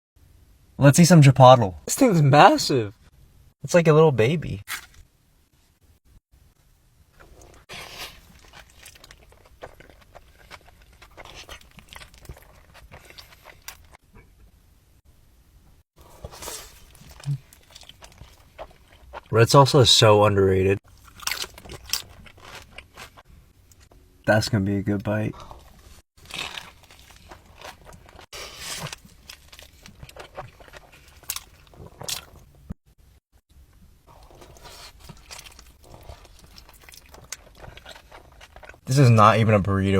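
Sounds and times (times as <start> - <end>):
chewing and biting: 7.2 - 14.0, 16.0 - 19.3, 20.9 - 23.9, 25.6 - 32.6, 34.1 - 38.8.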